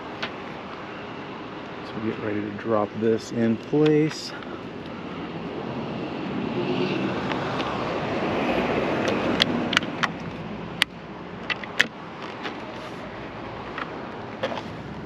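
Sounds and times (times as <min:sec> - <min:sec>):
rushing noise: 0:04.2 - 0:10.8.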